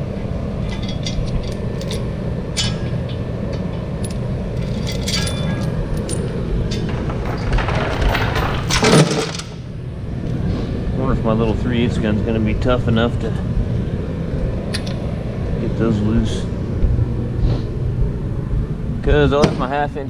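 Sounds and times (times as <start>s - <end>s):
low machine hum: 0.0s - 20.0s
metal tools clinking on housing: 4.0s - 7.0s.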